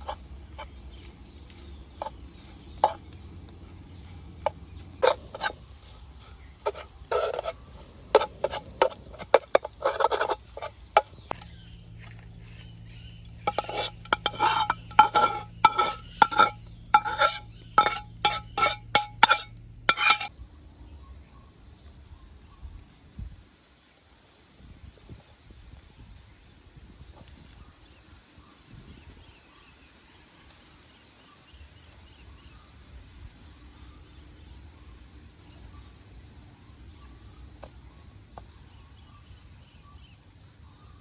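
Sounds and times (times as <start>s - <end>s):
utensil clinking against pot: 2.0s - 3.2s, 6.6s - 11.4s, 13.4s - 20.3s.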